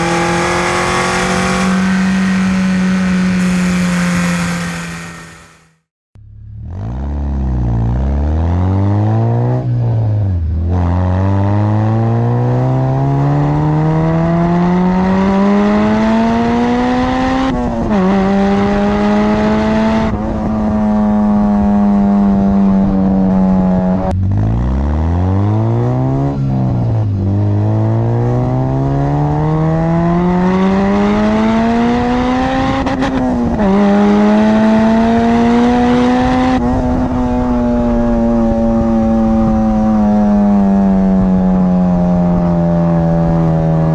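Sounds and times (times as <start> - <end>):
car engine accelerating: 0.0 - 5.9, 27.6 - 43.9.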